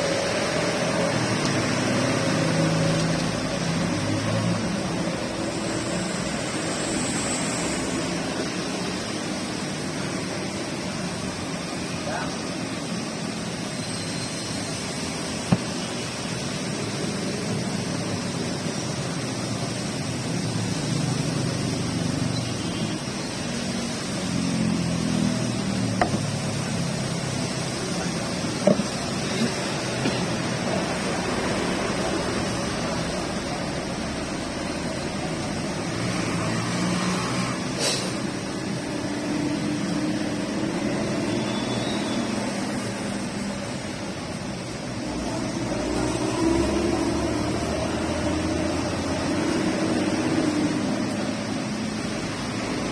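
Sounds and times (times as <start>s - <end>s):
steady rain falling: 0.0s - 52.9s
sharp tap: 26.0s - 26.2s.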